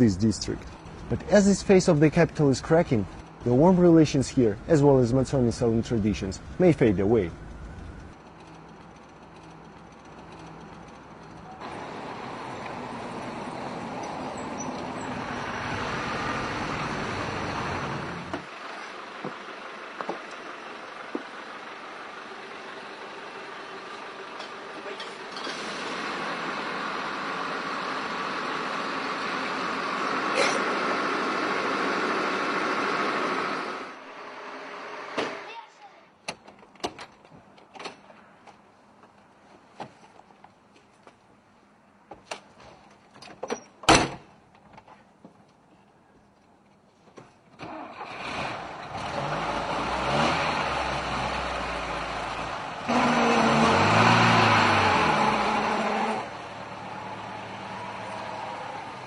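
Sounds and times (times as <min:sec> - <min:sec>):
vehicle running noise: 0:00.0 - 0:35.4, 0:47.7 - 0:59.0
street traffic: 0:00.0 - 0:59.0.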